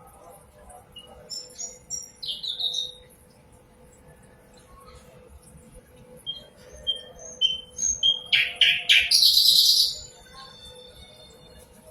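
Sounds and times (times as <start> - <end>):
nightingale singing: 6.3 - 10.2.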